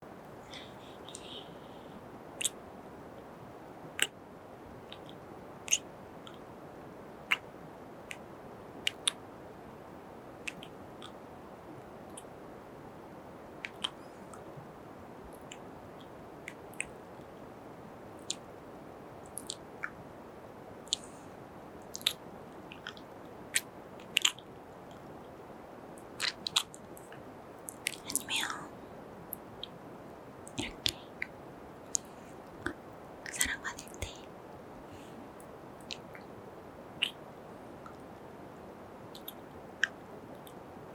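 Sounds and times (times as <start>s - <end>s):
faint steady hiss: 0.0s - 40.9s
kissing and wet mouth sounds: 0.5s - 1.6s, 2.4s - 2.6s, 4.0s - 4.2s, 4.9s - 6.4s, 7.3s - 7.5s, 8.8s - 9.2s, 10.4s - 11.2s, 13.6s - 14.4s, 16.5s - 17.0s, 18.2s - 18.4s, 19.3s - 20.0s, 21.9s - 25.1s, 26.2s - 28.6s, 30.5s - 34.3s, 35.8s - 36.3s, 37.0s - 37.2s, 39.1s - 40.6s.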